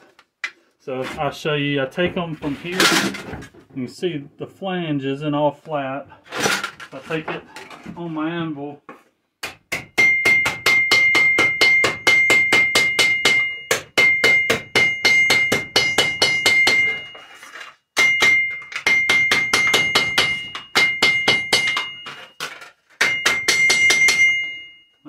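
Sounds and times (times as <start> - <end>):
hammer striking metal on anvil: 9.4 - 17.2, 18.0 - 22.4, 23.0 - 24.8
anvil ringing: 10.0 - 17.3, 18.0 - 24.9.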